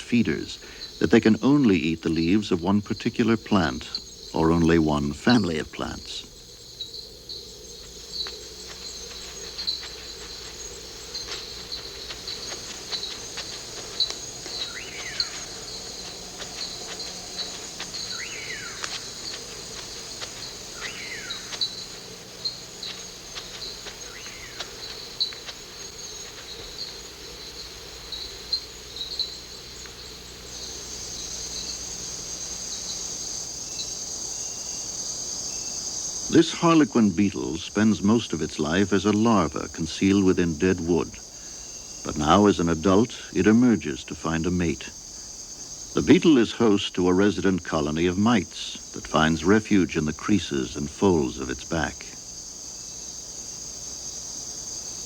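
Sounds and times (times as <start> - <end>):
insect chirps: 0.0 - 55.0
insects buzzing: 0.0 - 55.0.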